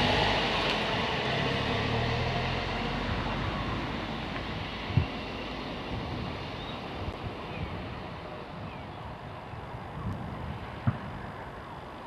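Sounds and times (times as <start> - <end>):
electric train rumble: 0.0 - 7.5.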